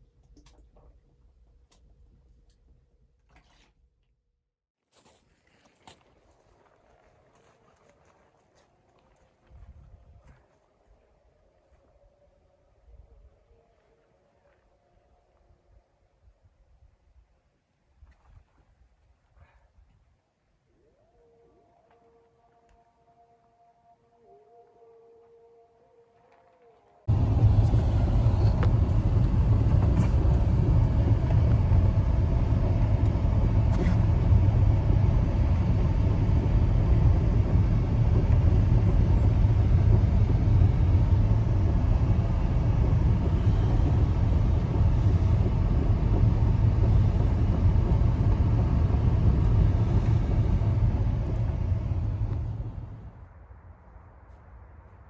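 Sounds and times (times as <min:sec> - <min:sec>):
strong wind rumbling: 0:27.1 - 0:55.0.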